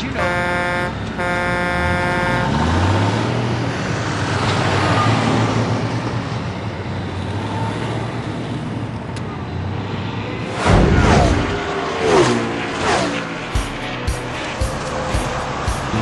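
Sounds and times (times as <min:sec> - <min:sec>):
truck engine running: 0:00.0 - 0:04.5
road and traffic noise: 0:00.0 - 0:16.0
loud whoosh: 0:10.4 - 0:13.8.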